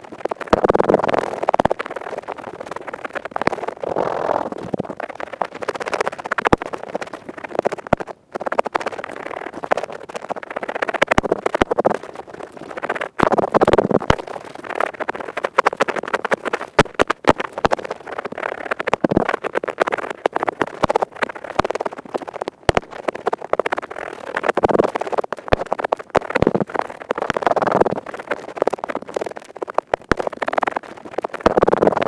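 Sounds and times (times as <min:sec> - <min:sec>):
earpick scratching in ear: 0:03.6 - 0:05.0.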